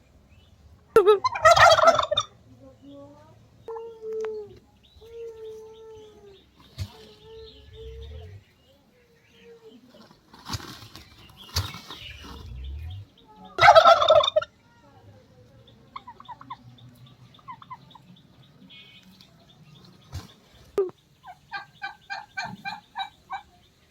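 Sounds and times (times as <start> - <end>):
turkeys gobbling: 0.9 - 2.4, 11.4 - 14.6, 15.9 - 16.6, 20.2 - 23.6.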